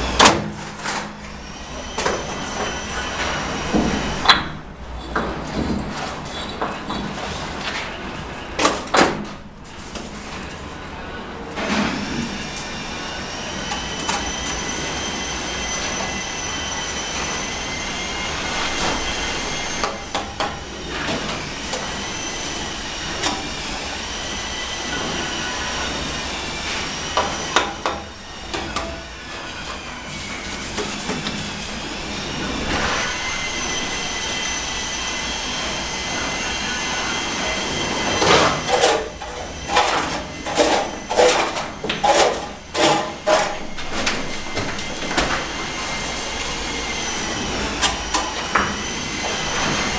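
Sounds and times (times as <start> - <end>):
sharp knocks and scrapes: 30.1 - 49.9.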